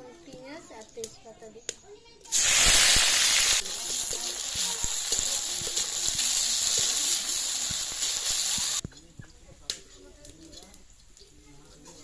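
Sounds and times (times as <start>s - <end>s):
onions sizzling in hot oil: 2.2s - 8.9s.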